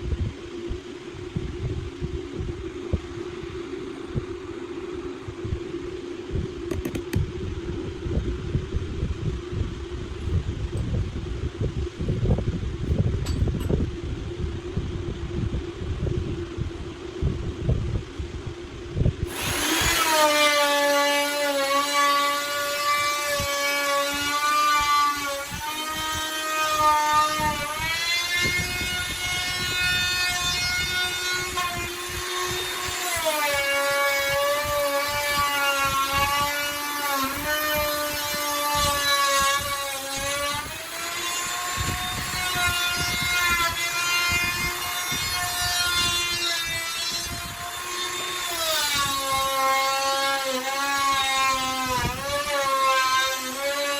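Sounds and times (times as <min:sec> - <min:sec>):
electric router whining: 0:06.5 - 0:07.5, 0:19.2 - 0:53.9.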